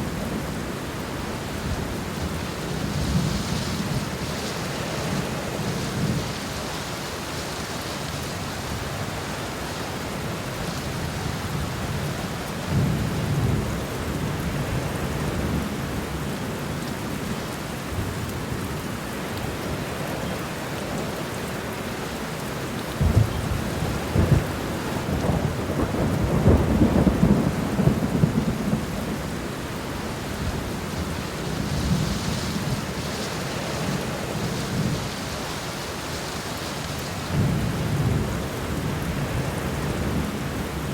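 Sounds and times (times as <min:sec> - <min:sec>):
rain falling: 0:00.0 - 0:40.9
thunder rumbling and cracking: 0:22.9 - 0:29.5, 0:37.2 - 0:40.8.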